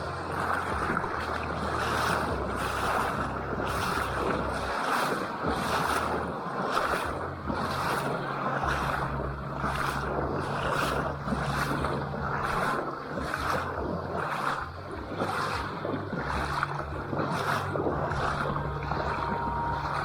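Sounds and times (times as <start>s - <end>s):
low hum: 0.0s - 20.0s
paddle strokes splashing: 0.0s - 20.0s
water wash: 0.0s - 20.0s
wind: 0.0s - 20.0s.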